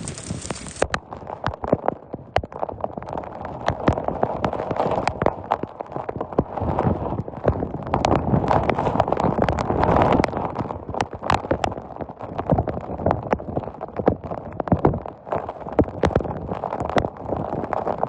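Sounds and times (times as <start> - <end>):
rain pelting a hard surface: 0.0 - 0.9.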